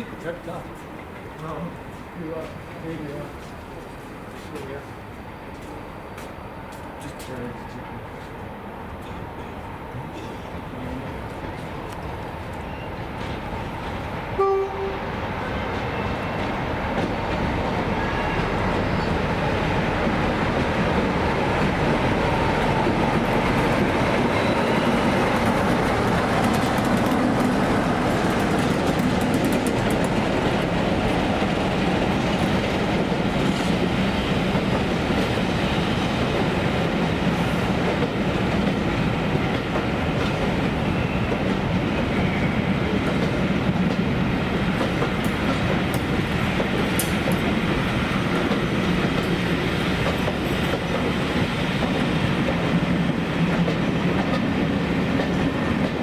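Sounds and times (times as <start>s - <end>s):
train horn toot: 14.4s - 16.4s
train wheels rattling over rails: 15.1s - 56.0s.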